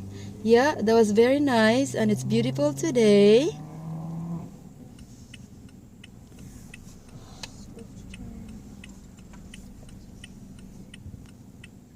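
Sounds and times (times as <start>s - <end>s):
engine and road rumble: 0.0s - 11.9s
turn signal relay ticking: 0.0s - 11.9s.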